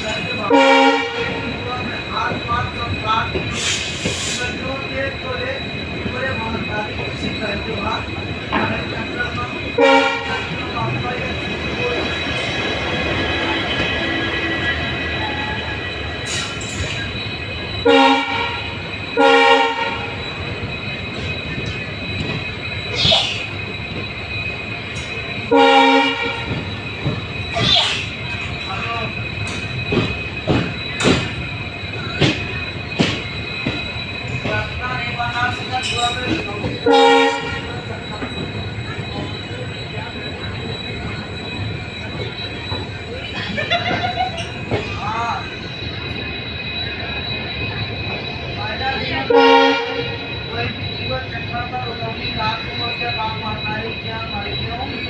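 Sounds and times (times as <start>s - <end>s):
train rumbling: 0.0s - 55.0s
train horn blasts: 0.5s - 1.5s, 9.8s - 10.5s, 17.8s - 20.2s, 25.5s - 26.5s, 36.8s - 37.7s, 49.3s - 50.2s.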